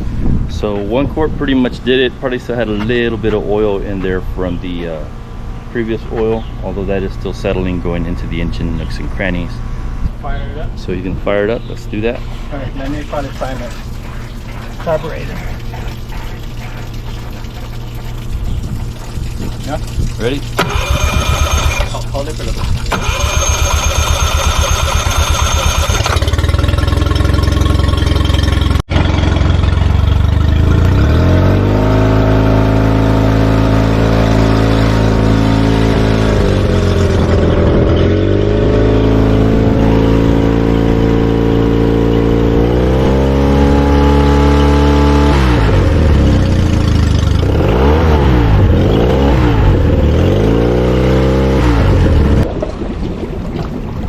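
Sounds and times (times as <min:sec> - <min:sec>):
outboard motor revving: 0:11.9 - 0:54.0.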